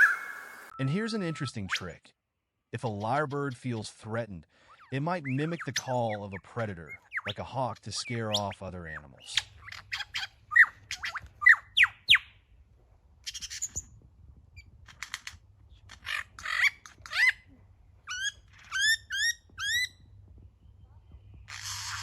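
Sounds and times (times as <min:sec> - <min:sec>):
lyrebird calling: 0:00.0 - 0:00.8, 0:04.6 - 0:12.3, 0:15.8 - 0:20.0.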